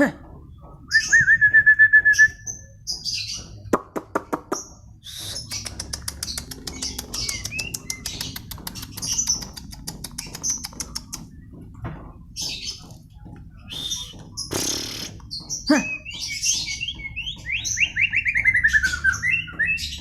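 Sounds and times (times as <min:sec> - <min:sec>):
bird dry ticks: 0:02.0 - 0:20.0
high whistled bird notes: 0:13.6 - 0:15.2.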